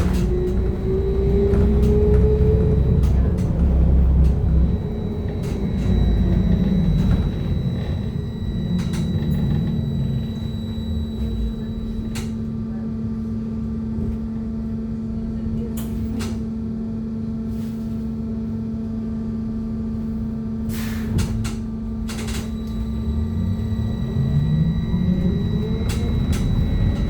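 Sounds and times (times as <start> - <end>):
road rumble: 0.0 - 12.3, 21.2 - 27.0
electrical hum: 3.9 - 12.2, 22.4 - 27.0.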